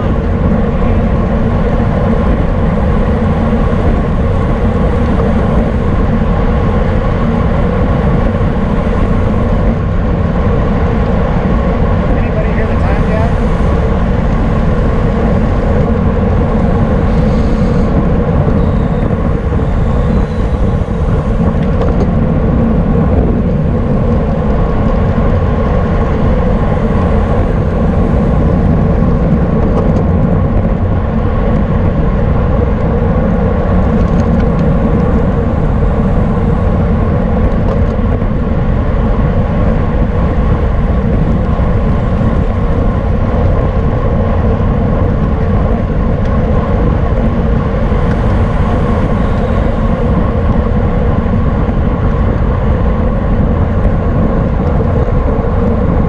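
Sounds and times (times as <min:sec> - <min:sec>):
bicycle road noise: 0:00.0 - 0:56.0
steady hum: 0:00.0 - 0:56.0
wind buffeting microphone: 0:00.0 - 0:56.0.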